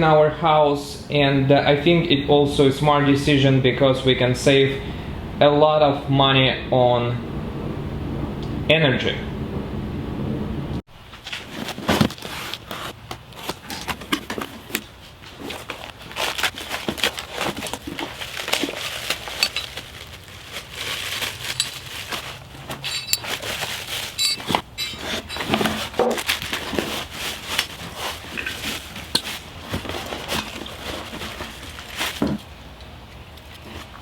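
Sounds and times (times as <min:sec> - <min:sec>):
crinkling rustles: 0:11.1 - 0:32.6
clinks and knocks: 0:19.3 - 0:19.8, 0:21.4 - 0:21.8, 0:22.8 - 0:26.1.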